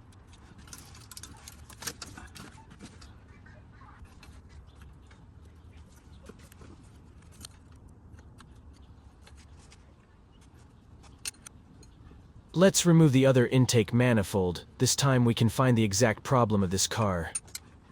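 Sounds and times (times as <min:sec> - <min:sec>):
low steady hum: 0:12.4 - 0:17.4.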